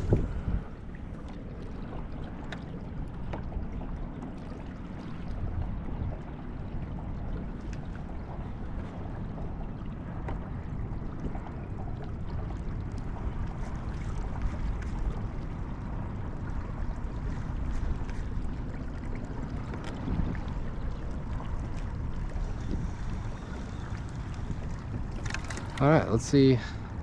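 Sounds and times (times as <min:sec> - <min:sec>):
water lapping against boat hull: 0:00.0 - 0:27.0
wind rumbling on microphone: 0:00.0 - 0:27.0.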